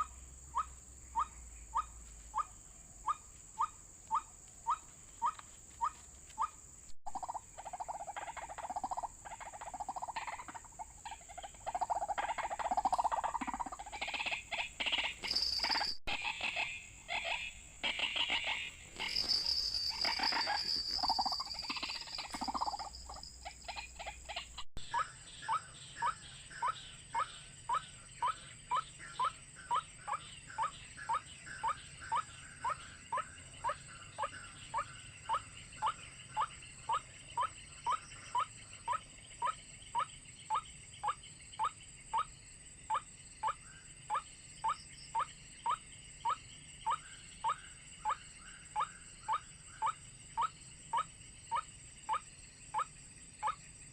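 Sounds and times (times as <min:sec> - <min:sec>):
waterhen calling: 0:00.0 - 0:32.8.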